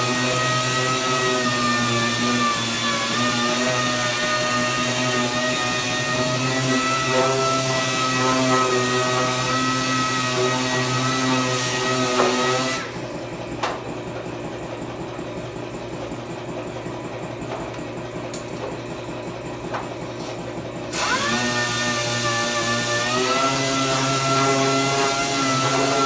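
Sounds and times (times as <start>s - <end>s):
electric power tool whining: 0.0s - 13.7s, 19.7s - 26.0s.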